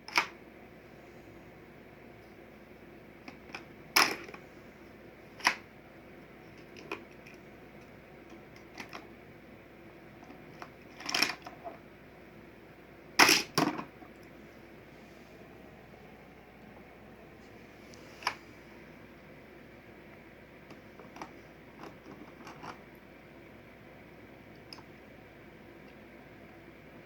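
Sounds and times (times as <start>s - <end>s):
toy cars and playset clacking: 0.1s - 0.4s, 3.3s - 4.4s, 5.4s - 5.6s, 8.3s - 9.1s, 10.5s - 11.6s, 13.2s - 13.9s, 21.0s - 22.8s.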